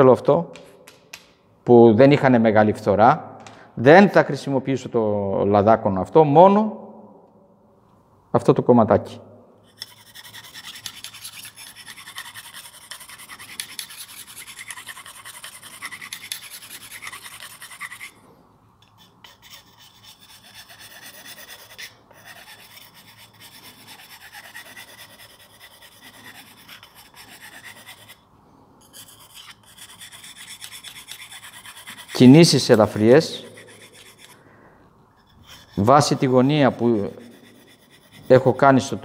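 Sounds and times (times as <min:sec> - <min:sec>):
chisel rubbing on oilstone: 0:09.7 - 0:18.2, 0:18.8 - 0:28.2, 0:28.8 - 0:34.4, 0:35.2 - 0:38.9.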